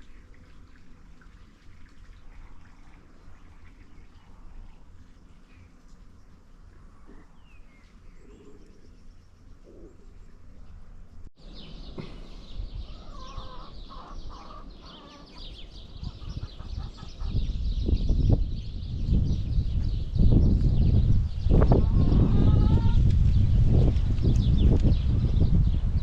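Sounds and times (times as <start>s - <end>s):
birds chirping and calling: 11.4s - 26.0s.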